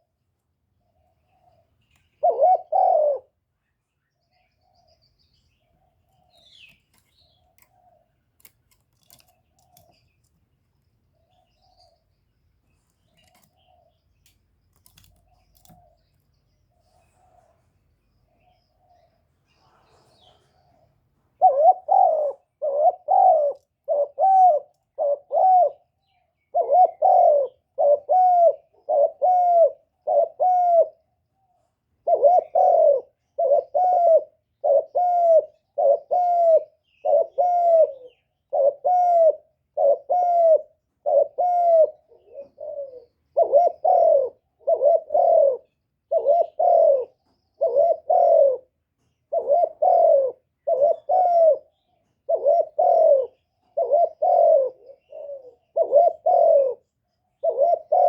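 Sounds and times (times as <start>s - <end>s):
dove cooing: 0.9s - 3.4s, 18.3s - 58.0s.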